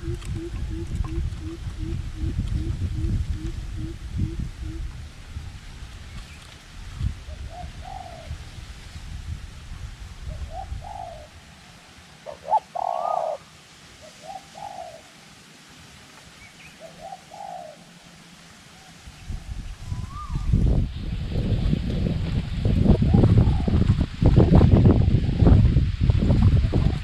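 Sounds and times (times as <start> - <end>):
dove cooing: 0.0 - 4.9, 7.3 - 8.4, 10.4 - 11.3, 12.2 - 15.2, 16.8 - 18.0
wind rumble on microphone: 0.0 - 11.6, 19.0 - 27.0.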